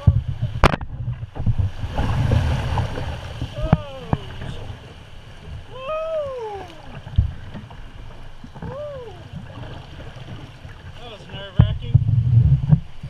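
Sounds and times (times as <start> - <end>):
creek water rushing: 0.0 - 11.6
person calling out: 5.7 - 6.9, 8.6 - 9.4.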